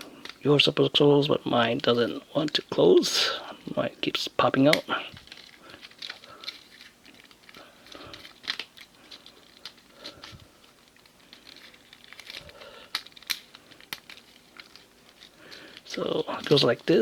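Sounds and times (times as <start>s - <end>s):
plastic toy parts clicking: 4.7s - 9.8s, 10.9s - 16.7s
faint rustling: 4.7s - 17.0s.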